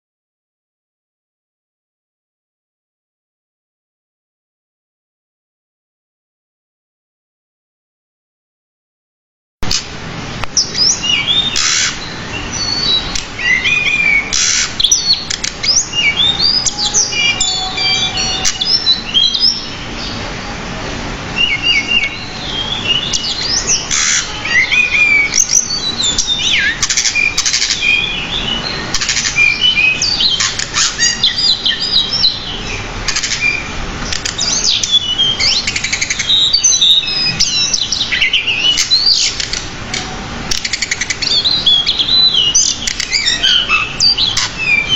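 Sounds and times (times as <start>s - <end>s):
bird singing chirps and trills: 10.5s - 44.9s.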